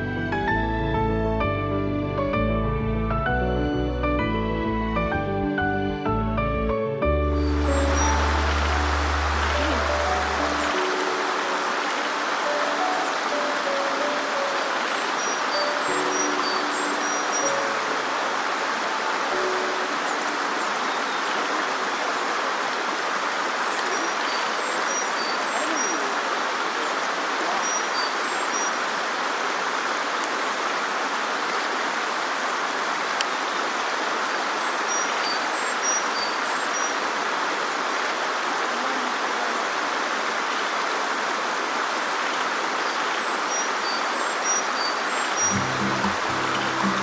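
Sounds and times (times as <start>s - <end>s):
songbird singing high notes: 7.3s - 21.2s, 44.9s - 47.0s
mountain stream rushing: 7.3s - 47.0s.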